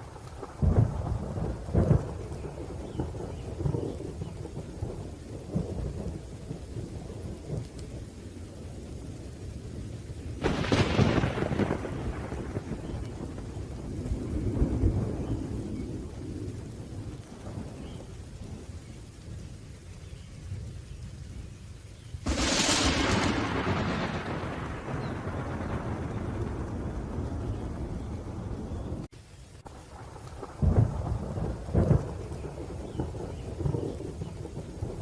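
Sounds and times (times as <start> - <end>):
sharp thunderclap: 0.0 - 7.7, 10.4 - 18.1, 22.2 - 29.1, 29.9 - 35.0
rolling thunder: 0.0 - 8.1, 9.2 - 19.4, 22.2 - 35.0
steady rain: 0.0 - 35.0.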